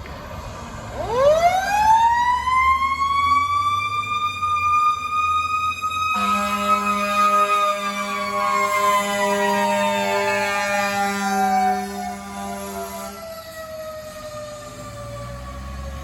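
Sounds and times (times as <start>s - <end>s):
truck engine rumbling: 0.0s - 16.0s
fire engine siren wailing: 0.8s - 16.0s
horn blast: 6.1s - 13.3s.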